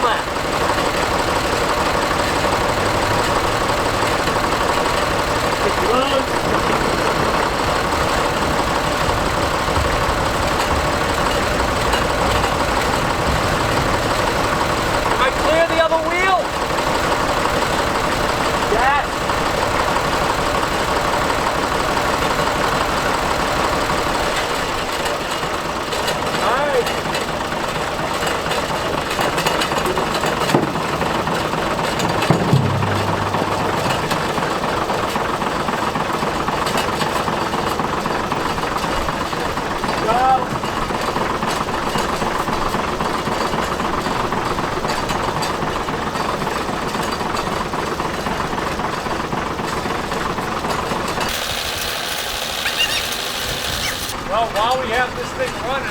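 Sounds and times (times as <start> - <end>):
tractor engine idling: 0.0 - 55.9
sharp knock: 32.1 - 34.6
brief low hum: 32.2 - 34.4.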